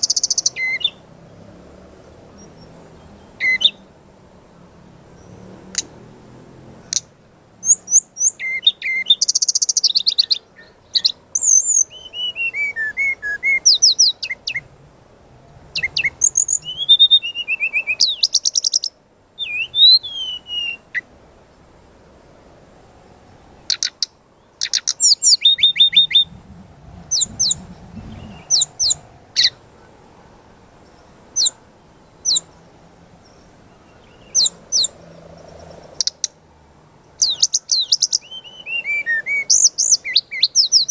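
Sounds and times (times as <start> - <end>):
bird singing chirps and trills: 0.0 - 4.1, 4.7 - 14.8, 15.6 - 22.3, 23.0 - 36.4, 37.0 - 40.9.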